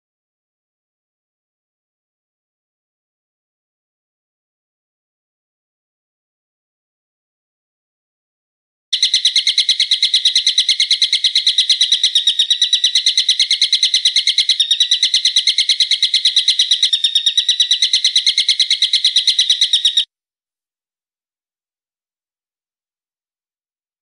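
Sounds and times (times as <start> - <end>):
songbird high-pitched trill: 9.0 - 20.1.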